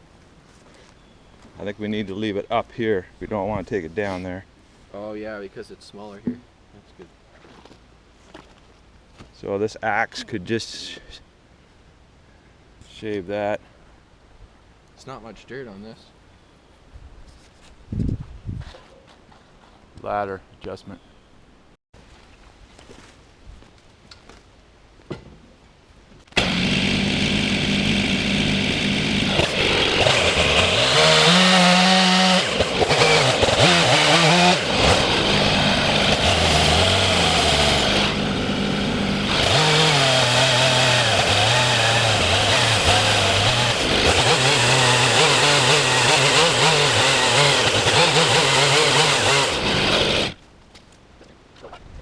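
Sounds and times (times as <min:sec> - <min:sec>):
chainsaw running and cutting: 0:26.4 - 0:50.4.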